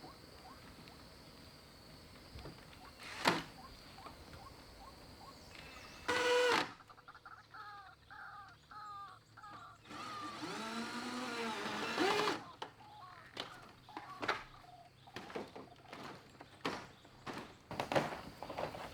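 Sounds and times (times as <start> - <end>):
bird calls: 0.0 - 18.9.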